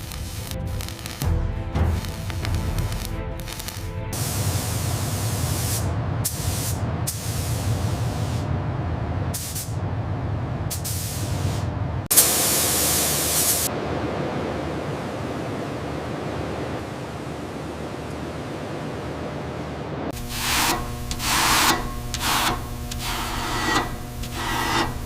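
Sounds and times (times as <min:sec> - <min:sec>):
hissing spray bursts: 0:00.0 - 0:01.3, 0:01.9 - 0:08.5, 0:09.4 - 0:09.8, 0:10.7 - 0:13.7, 0:20.2 - 0:25.0
low rumble: 0:00.0 - 0:12.1.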